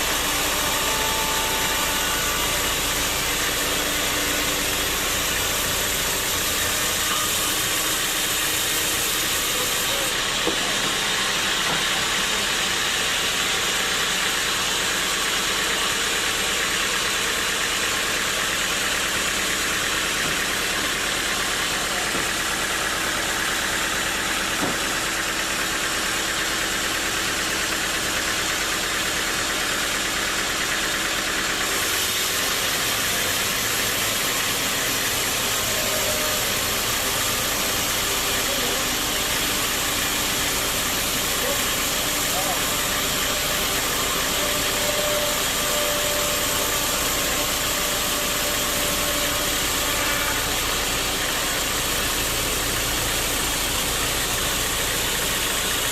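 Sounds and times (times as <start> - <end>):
motor hum: 0.0 - 7.7
sawmill machinery running: 0.0 - 55.9.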